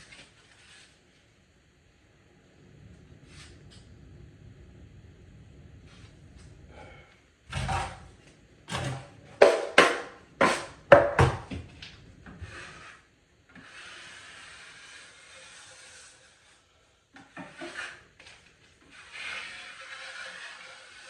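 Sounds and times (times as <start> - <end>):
drywall knife scraping compound: 0.0 - 1.0, 6.9 - 8.1, 8.7 - 10.9, 12.2 - 21.0.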